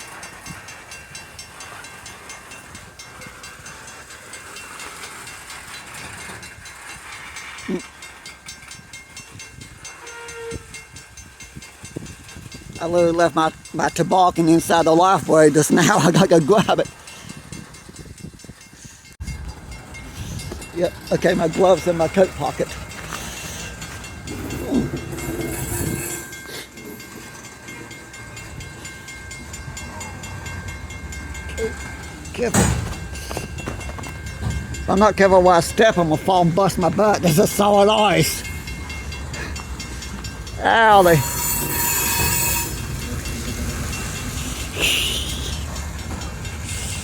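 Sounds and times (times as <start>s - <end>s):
train wheels clicking over rail joints: 0.0s - 47.0s
wheel squeal: 22.9s - 26.7s, 40.9s - 43.2s.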